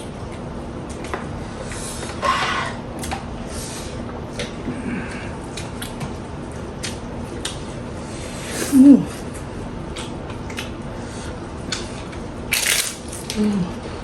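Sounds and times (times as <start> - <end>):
chewing and wet mouth clicks: 9.9 - 10.8, 11.7 - 12.2.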